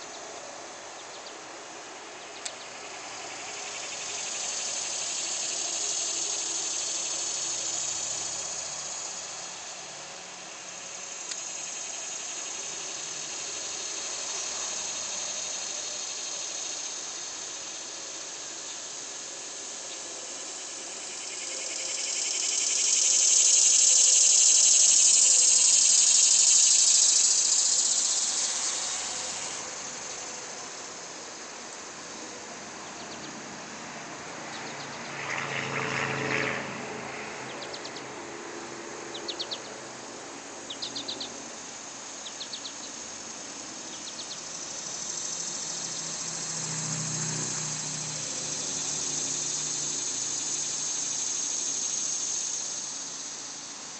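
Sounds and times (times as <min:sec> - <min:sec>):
cicadas buzzing in chorus: 0:00.0 - 0:53.9
bird chirps: 0:37.5 - 0:38.1, 0:39.1 - 0:39.8, 0:40.7 - 0:41.4, 0:42.2 - 0:43.0, 0:43.9 - 0:44.5.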